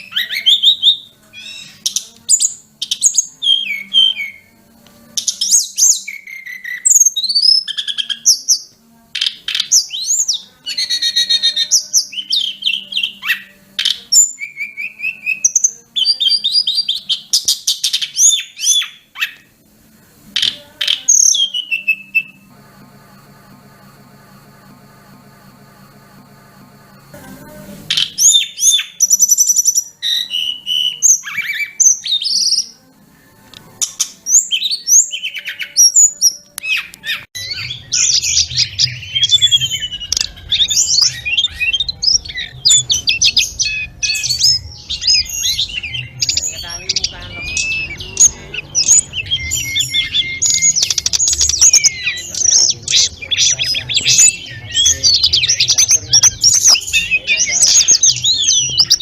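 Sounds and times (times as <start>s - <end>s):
songbird chattering and whistling: 5.2s - 19.5s, 27.9s - 32.8s, 33.8s - 59.0s
low hum: 22.2s - 28.0s, 37.3s - 59.0s.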